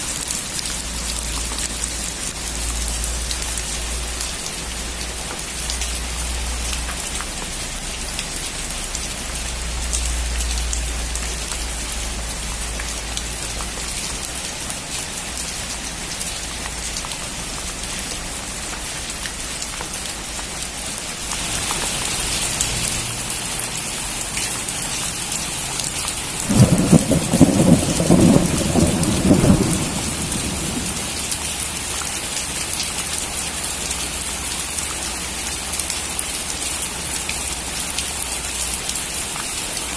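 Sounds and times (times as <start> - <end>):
heavy rain: 0.0 - 39.9
close thunderclap: 26.4 - 31.3.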